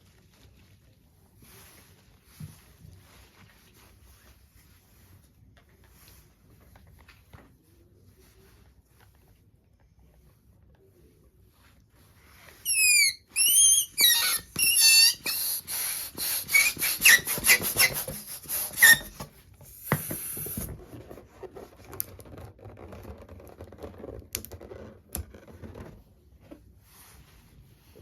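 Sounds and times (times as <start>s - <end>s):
soft rustling: 0.0s - 12.7s, 17.0s - 28.0s
rubber balloons squeaking: 12.6s - 20.7s.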